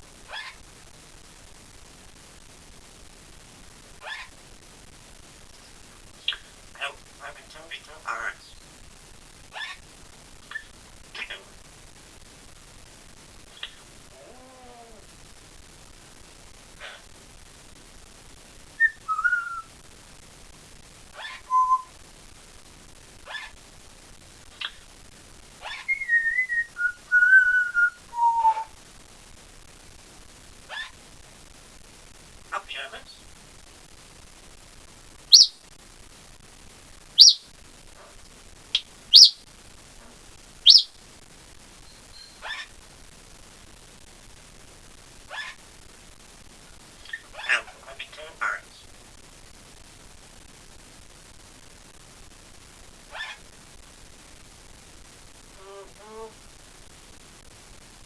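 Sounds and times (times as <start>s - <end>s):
parrot rough call: 0.3s - 0.6s, 4.0s - 4.3s, 9.5s - 9.8s, 13.6s - 15.0s, 16.8s - 17.1s, 21.2s - 21.9s, 23.3s - 23.5s, 25.6s - 26.0s, 30.7s - 31.0s, 42.4s - 42.7s, 45.3s - 45.6s, 47.0s - 47.8s, 55.6s - 56.4s
parrot whistling and chirping: 13.6s - 13.8s, 18.8s - 19.7s, 21.2s - 21.9s, 25.6s - 28.7s, 30.7s - 30.9s, 35.3s - 35.6s, 37.2s - 37.4s, 38.8s - 39.4s, 40.6s - 40.9s, 41.9s - 42.7s, 47.0s - 47.6s.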